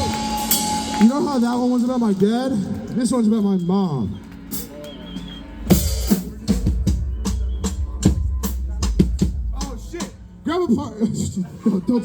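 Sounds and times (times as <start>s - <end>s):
drum kit beat: 0.0s - 11.4s
low bass: 5.3s - 11.4s.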